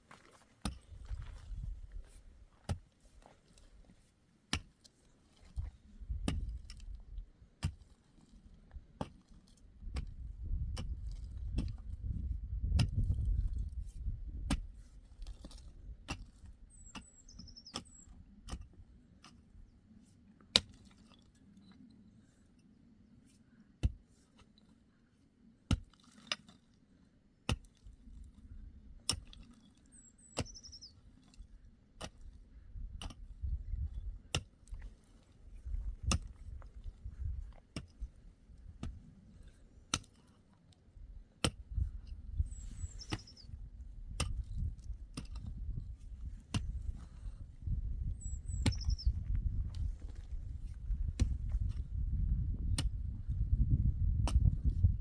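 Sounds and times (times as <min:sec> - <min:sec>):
small bird chirping: 0:16.7 - 0:18.2, 0:29.9 - 0:31.0, 0:42.4 - 0:43.5, 0:48.1 - 0:49.2.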